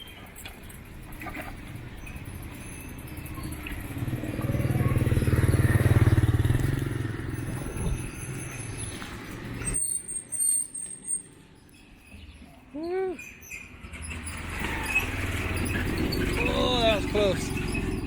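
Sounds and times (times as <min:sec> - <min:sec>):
motorbike engine passing: 0:02.9 - 0:09.7, 0:13.7 - 0:18.0.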